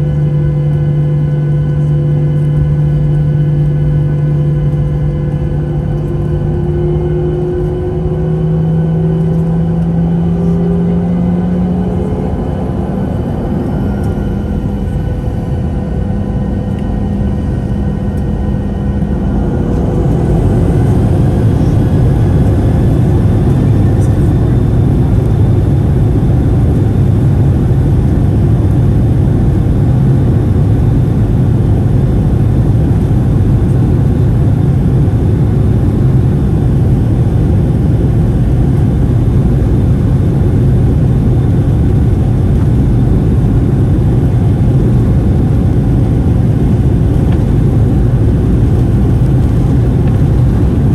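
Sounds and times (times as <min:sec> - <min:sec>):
jet engines spooling up: 0:05.7 - 0:50.9.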